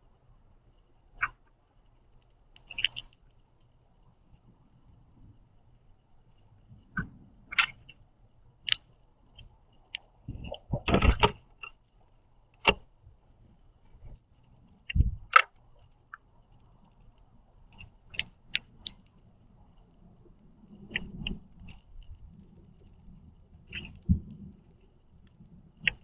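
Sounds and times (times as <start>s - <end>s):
bird pecking cracking seeds: 2.1s - 4.2s, 7.5s - 8.0s, 8.6s - 10.3s.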